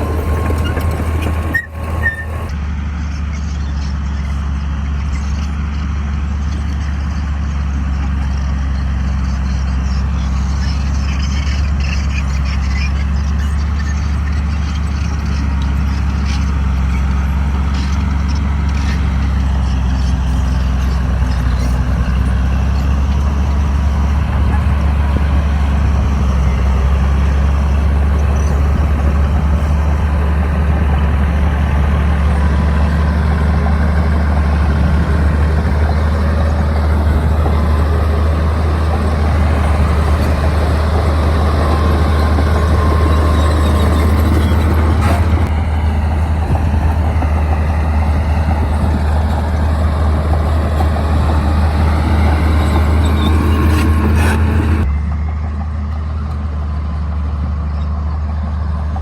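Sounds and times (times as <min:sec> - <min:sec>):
bulldozer diesel engine droning: 0:00.0 - 0:59.0.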